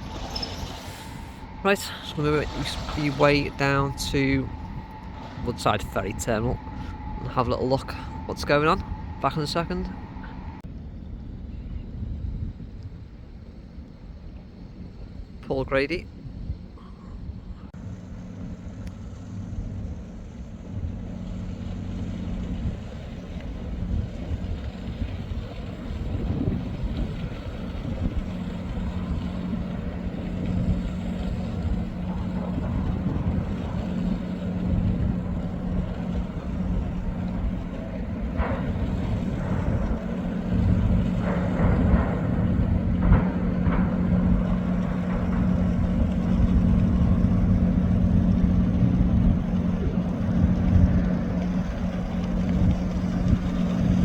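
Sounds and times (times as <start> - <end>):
bicycle rumbling on road: 0.0 - 7.2, 17.5 - 54.0
low hum: 0.0 - 54.0
wind on microphone: 16.0 - 54.0
rattling knocks: 26.1 - 54.0.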